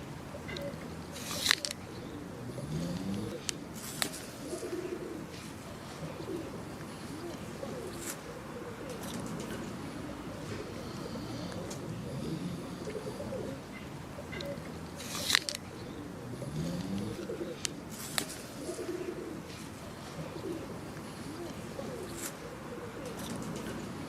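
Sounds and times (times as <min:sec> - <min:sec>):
birds cooing: 0:00.0 - 0:24.0
sharp clicks: 0:00.5 - 0:01.8, 0:14.4 - 0:15.7.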